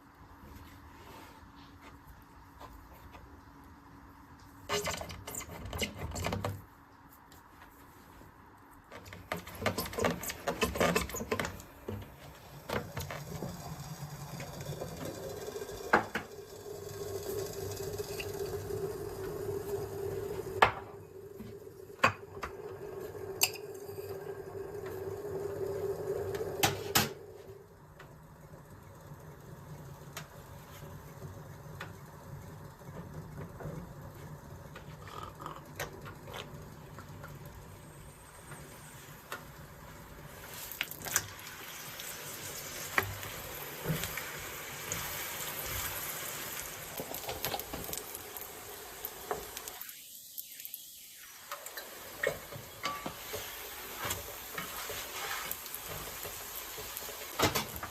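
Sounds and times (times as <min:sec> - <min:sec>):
small appliance humming: 0:09.0 - 0:40.2, 0:41.2 - 0:54.8.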